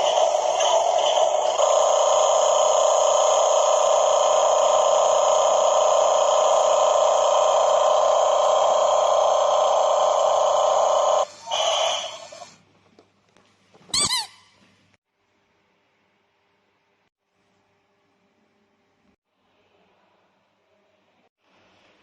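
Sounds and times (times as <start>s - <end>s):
toy truck buzzing tone: 0.0s - 12.5s.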